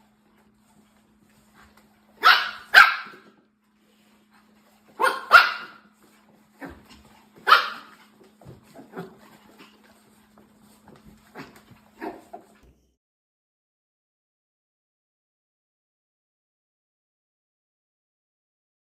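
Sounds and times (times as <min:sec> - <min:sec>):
dog barking: 0:02.2 - 0:03.2, 0:05.0 - 0:05.9, 0:07.4 - 0:08.0.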